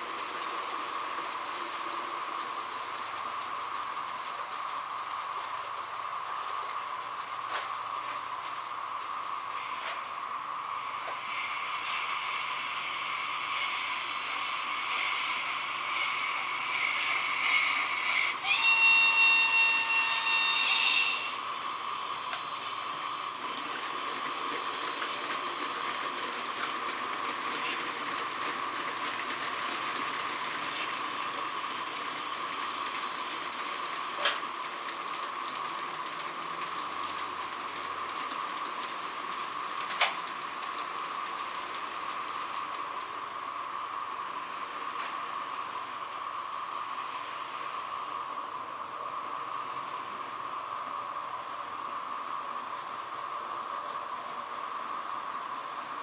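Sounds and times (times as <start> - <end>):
model trains running on track: 0.0 - 56.0
steam locomotive whistle: 14.8 - 21.4.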